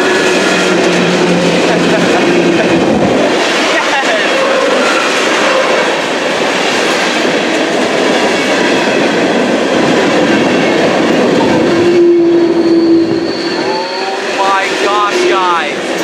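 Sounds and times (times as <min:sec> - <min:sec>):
train wheels clattering on rails: 0:00.0 - 0:16.0
steady tone: 0:14.0 - 0:15.8.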